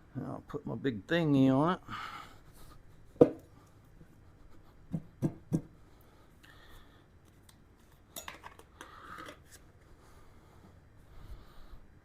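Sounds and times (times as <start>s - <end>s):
tools knocking: 3.2s - 3.4s.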